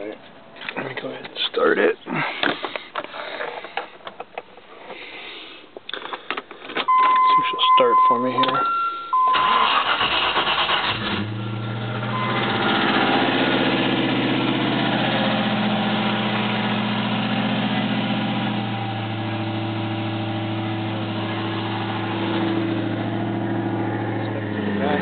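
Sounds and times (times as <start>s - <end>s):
car engine idling: 8.3s - 25.0s
engine starter cranking: 9.2s - 11.6s.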